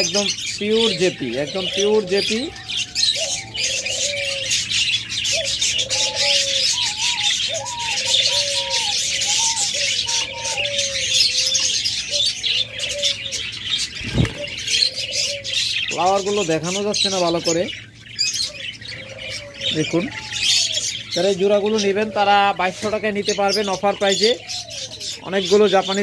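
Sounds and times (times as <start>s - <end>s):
budgerigars chattering and chirping: 0.0s - 26.0s
low cooing calls: 0.0s - 26.0s.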